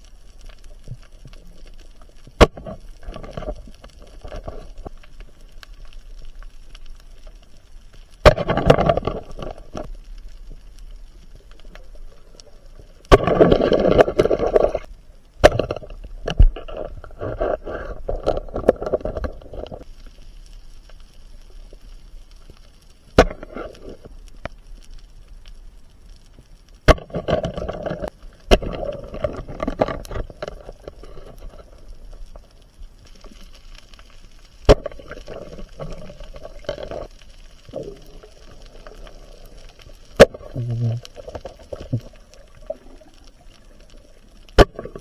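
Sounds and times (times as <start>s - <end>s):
underwater bubbling rush: 8.2s - 14.9s, 34.2s - 45.0s.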